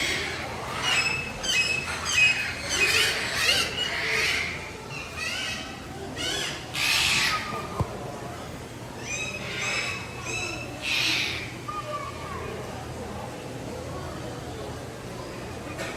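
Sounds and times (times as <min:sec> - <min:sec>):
birds squawking and whistling: 0:00.0 - 0:07.8, 0:09.0 - 0:11.9.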